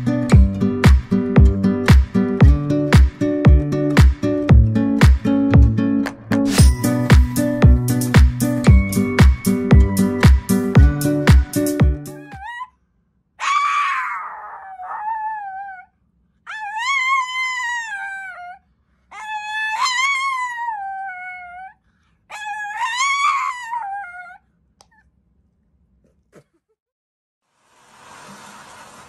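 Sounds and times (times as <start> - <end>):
music track: 0.0 - 12.3
small dog howling: 12.2 - 12.7, 13.4 - 15.9, 16.5 - 24.4.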